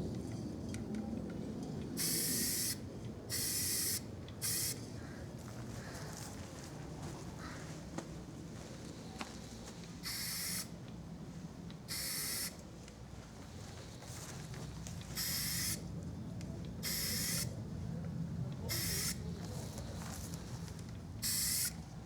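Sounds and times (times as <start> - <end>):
spray paint can spraying: 2.0 - 4.8, 10.0 - 10.7, 11.9 - 12.5, 15.2 - 15.8, 16.8 - 17.5, 18.7 - 19.2, 21.2 - 21.8.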